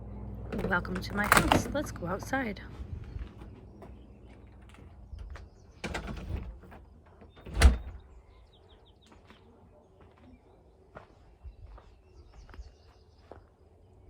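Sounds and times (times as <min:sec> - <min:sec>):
door banging shut: 0:00.5 - 0:01.8, 0:05.8 - 0:08.0.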